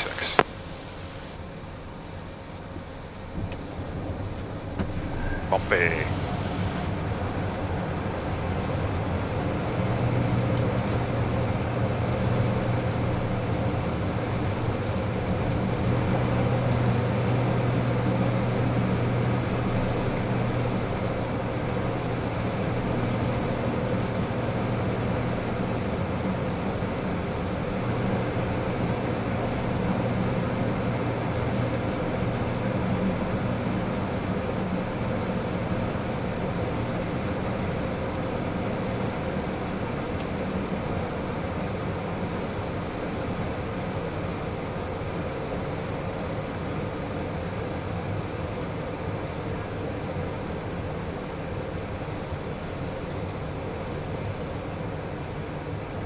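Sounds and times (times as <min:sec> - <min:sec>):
jet cockpit airflow: 0:00.0 - 0:01.7, 0:03.2 - 0:07.8
jet engines droning: 0:00.0 - 0:45.9.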